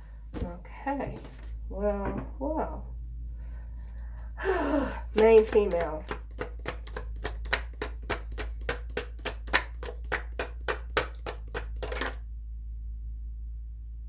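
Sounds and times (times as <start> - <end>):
low steady hum: 0.0 - 14.0
cards being shuffled: 1.2 - 1.7, 5.0 - 12.2.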